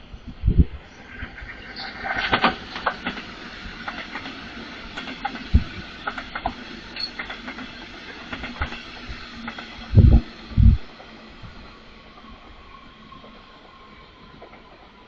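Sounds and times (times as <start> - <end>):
train running noise: 0.0 - 15.0
train wheels clicking over rail joints: 1.3 - 11.4.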